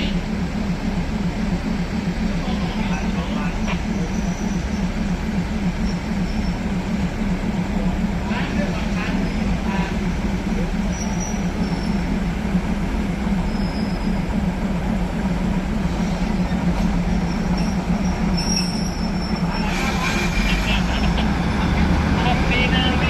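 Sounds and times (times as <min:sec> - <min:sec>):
diesel railcar engine drone: 0:00.0 - 0:23.0
high-pitched wheel squeals: 0:10.9 - 0:12.0, 0:17.2 - 0:20.5.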